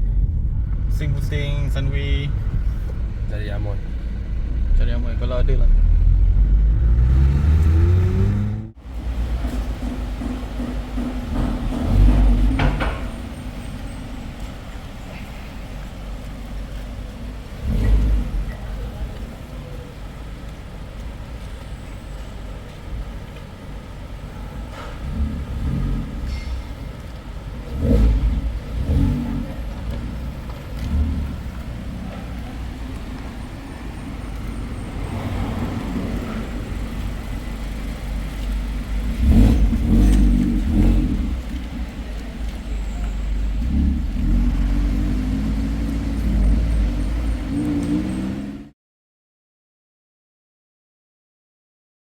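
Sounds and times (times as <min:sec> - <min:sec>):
car engine revving: 0:00.0 - 0:13.9, 0:16.0 - 0:19.5, 0:24.7 - 0:48.7
road noise: 0:00.0 - 0:48.8.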